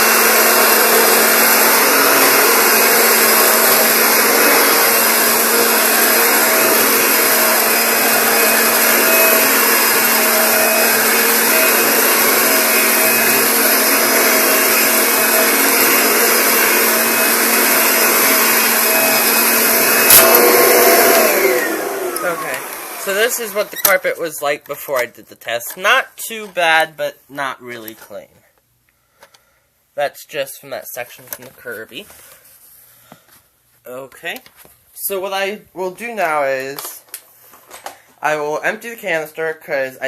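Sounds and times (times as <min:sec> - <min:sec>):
vacuum cleaner running on carpet: 0:00.0 - 0:23.9.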